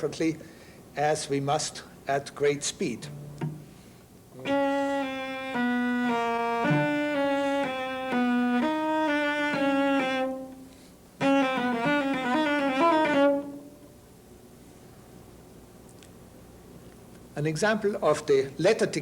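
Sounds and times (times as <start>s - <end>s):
solo cello playing: 4.4s - 14.0s.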